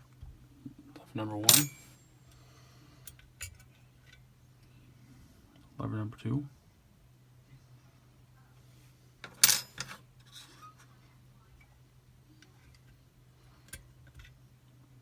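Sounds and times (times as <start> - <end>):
lock parts clicking and clinking: 1.4 - 1.9, 9.2 - 10.0.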